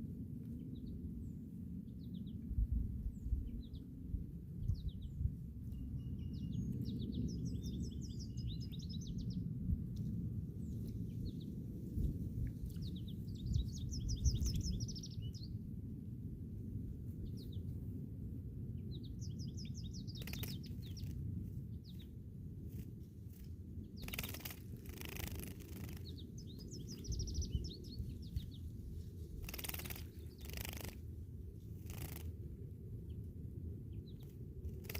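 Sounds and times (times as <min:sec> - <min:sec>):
steady low rumble: 0:00.0 - 0:34.9
sparrow singing: 0:04.6 - 0:09.4, 0:12.7 - 0:15.6, 0:18.8 - 0:22.1, 0:22.7 - 0:28.8, 0:29.4 - 0:31.0, 0:31.8 - 0:32.3, 0:33.9 - 0:34.9.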